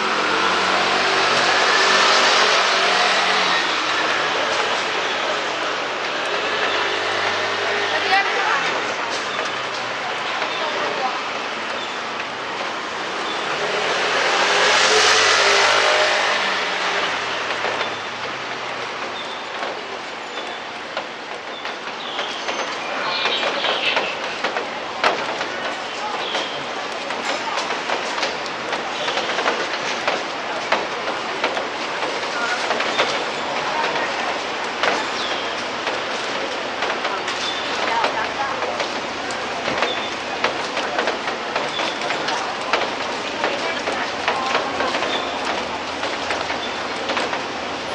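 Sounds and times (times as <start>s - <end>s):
vehicle tyres hissing on wet road: 0.0s - 8.0s, 9.8s - 19.0s
steady rain: 0.0s - 47.9s
raindrops ticking close: 16.8s - 47.9s.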